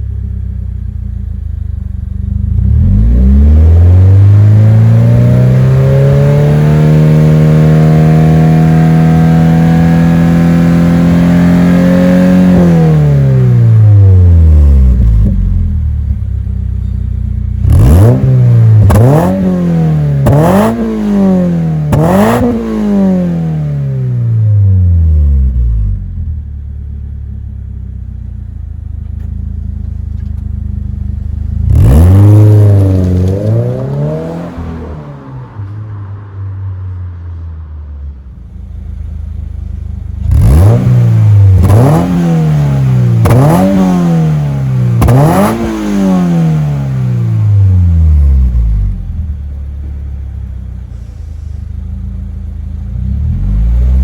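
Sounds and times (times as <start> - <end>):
car engine idling: 0.0 - 3.1, 13.5 - 35.8, 38.1 - 46.0, 46.7 - 54.0
car engine revving: 2.2 - 16.7, 17.4 - 36.9, 38.1 - 54.0.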